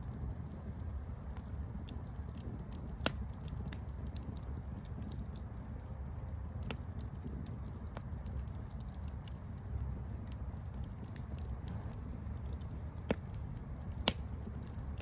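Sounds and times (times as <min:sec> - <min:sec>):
fire crackling: 0:00.0 - 0:15.0
flames rumbling: 0:00.0 - 0:15.0
sharp fire pop: 0:13.0 - 0:14.5.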